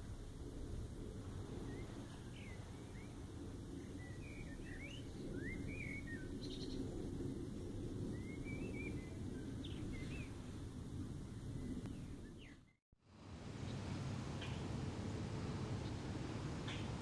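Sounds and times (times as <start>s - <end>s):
steady low rumble: 0.0s - 12.7s
songbirds chirping: 1.4s - 12.8s, 13.4s - 17.0s.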